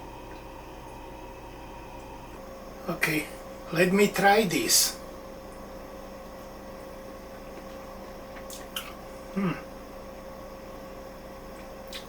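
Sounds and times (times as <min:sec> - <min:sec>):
low kitchen hum: 0:00.0 - 0:12.0
person humming approval: 0:09.4 - 0:09.6.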